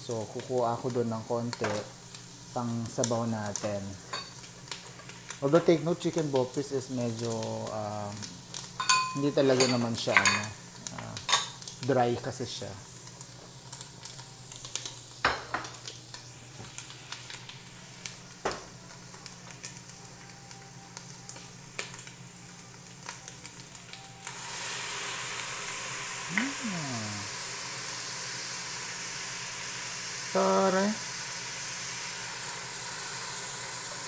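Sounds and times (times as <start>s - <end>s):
food sizzling in a pot: 0.0s - 34.0s
loud steam hiss: 24.3s - 34.0s.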